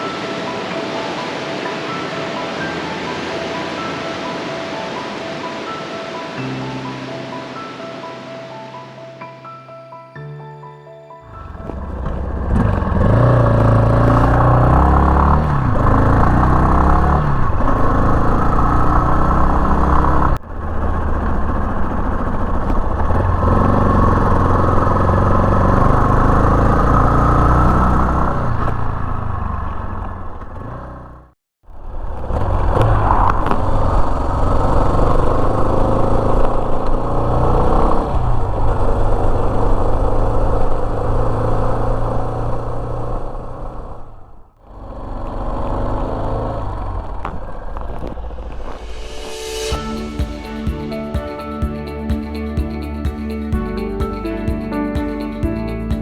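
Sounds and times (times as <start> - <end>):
motorcycle engine while riding: 11.3 - 48.8.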